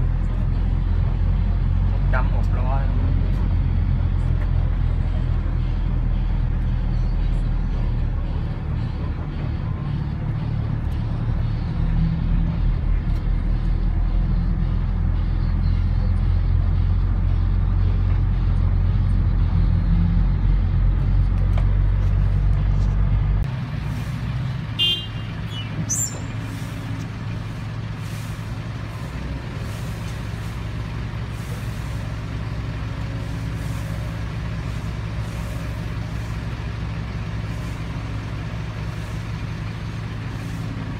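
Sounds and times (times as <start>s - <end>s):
diesel engine droning: 0.0s - 40.9s
high squeal: 25.5s - 26.5s.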